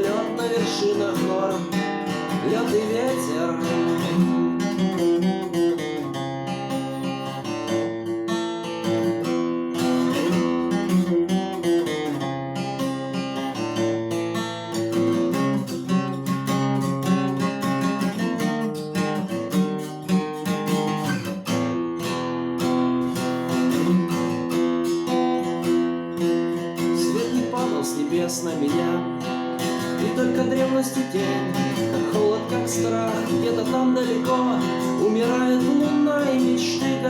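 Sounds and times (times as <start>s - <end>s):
acoustic guitar strumming chords: 0.0s - 37.0s.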